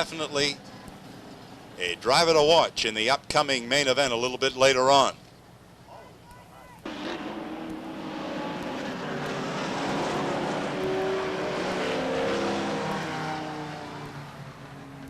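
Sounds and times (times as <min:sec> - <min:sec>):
race cars passing: 0:06.8 - 0:15.0.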